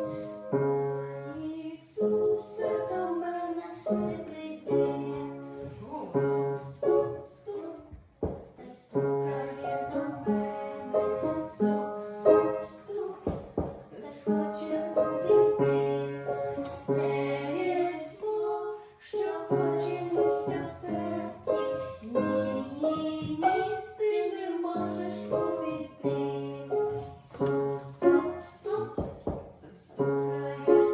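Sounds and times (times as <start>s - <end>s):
piano accompaniment: 0.0s - 30.9s
person singing: 8.6s - 30.9s.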